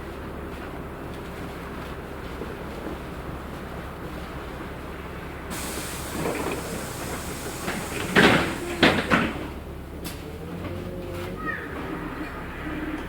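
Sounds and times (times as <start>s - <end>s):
bus cabin rumble: 0.0s - 13.0s
hissing rush: 5.5s - 9.4s.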